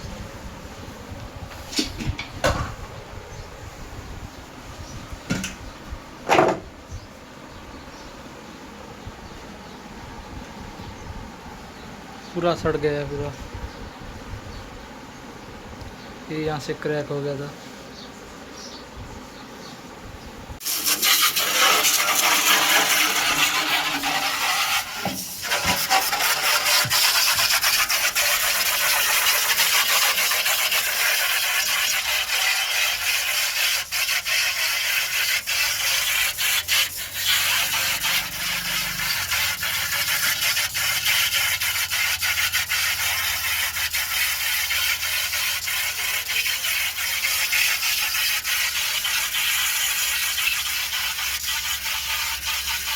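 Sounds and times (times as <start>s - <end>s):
scraping and rubbing on metal: 20.6s - 52.9s.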